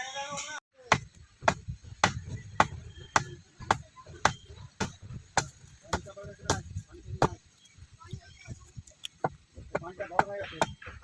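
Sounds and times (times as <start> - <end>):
tool chopping wood: 0.9 - 7.4, 9.0 - 11.0.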